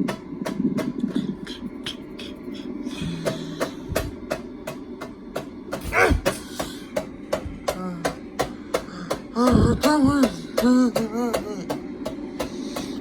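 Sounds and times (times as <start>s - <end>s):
ceiling fan humming and clicking: 0.0s - 13.0s.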